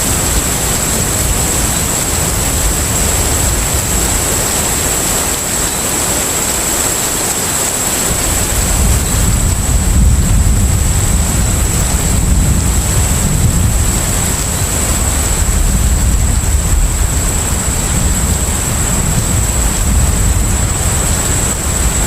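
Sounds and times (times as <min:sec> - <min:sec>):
deep ship engine rumble: 0:00.0 - 0:05.4, 0:08.1 - 0:22.0
sea and wind noise: 0:00.0 - 0:22.0.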